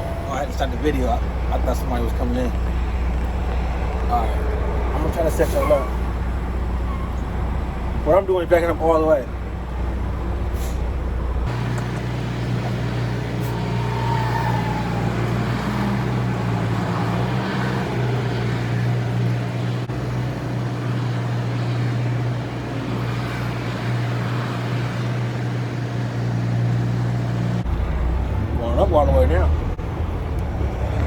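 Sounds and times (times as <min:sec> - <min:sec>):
diesel truck engine reversing: 0:00.0 - 0:31.0.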